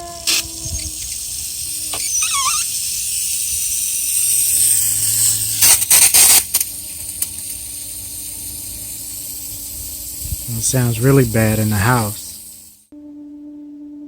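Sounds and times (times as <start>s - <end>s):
wavering squeal: 0.0s - 5.6s
steady low hum: 0.0s - 13.5s
faucet water rushing: 0.3s - 12.9s
loud water bursts: 0.9s - 12.9s.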